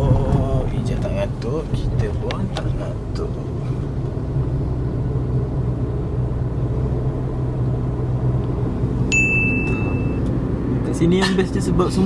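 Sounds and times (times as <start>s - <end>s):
car engine and road noise: 0.0s - 12.0s
high steady beep: 9.1s - 10.3s.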